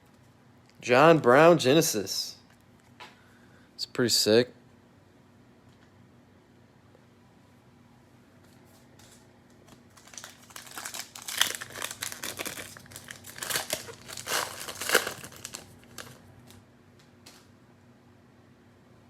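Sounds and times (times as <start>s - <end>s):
plastic wrapper crinkling: 9.0s - 16.6s.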